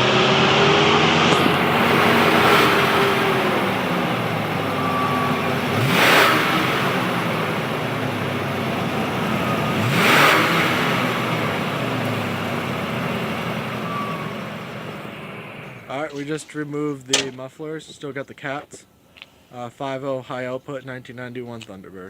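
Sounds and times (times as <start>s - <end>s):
car engine idling and revving: 0.0s - 15.9s.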